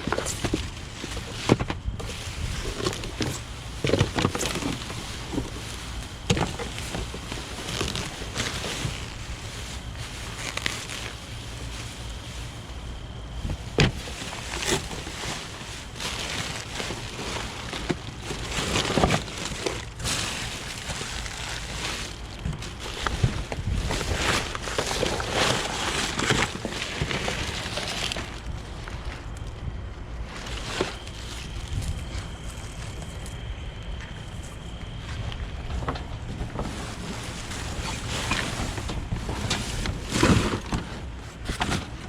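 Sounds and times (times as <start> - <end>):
knocks and clatters of items: 0.0 - 11.0
rustling and crinkling trash: 0.0 - 42.0
steady low rumble: 0.0 - 42.0.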